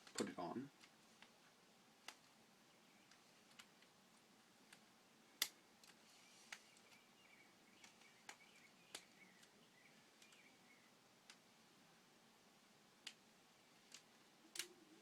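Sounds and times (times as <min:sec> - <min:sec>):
plastic pieces clicking: 0:04.7 - 0:07.0.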